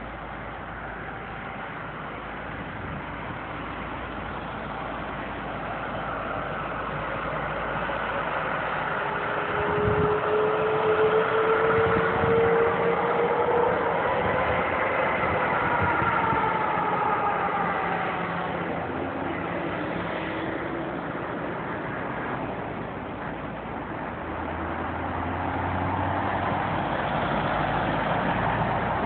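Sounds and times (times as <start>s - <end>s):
jet engines roaring: 0.0s - 29.0s
whining tones sliding down: 8.4s - 19.8s.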